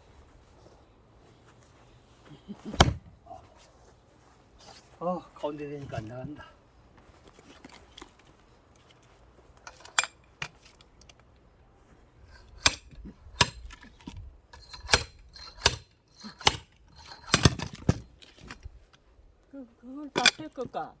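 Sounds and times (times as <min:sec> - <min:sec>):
axe chopping firewood: 0:02.6 - 0:03.2, 0:12.4 - 0:13.8, 0:14.6 - 0:18.6, 0:20.2 - 0:20.8.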